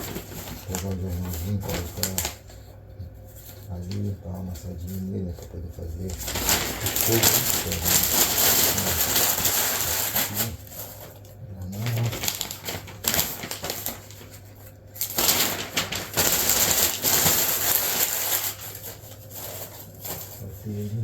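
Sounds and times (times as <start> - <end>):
newspaper being crumpled: 0.0 - 2.7, 3.3 - 21.0.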